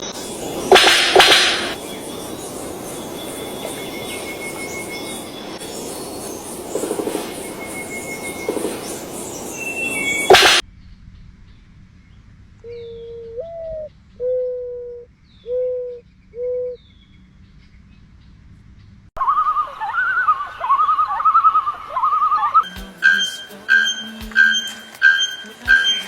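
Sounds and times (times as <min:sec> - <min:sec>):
fast quavering bird warble: 0:00.0 - 0:10.6, 0:19.5 - 0:26.0
low hooting bird calls: 0:00.0 - 0:10.9, 0:12.6 - 0:17.8, 0:19.2 - 0:26.0.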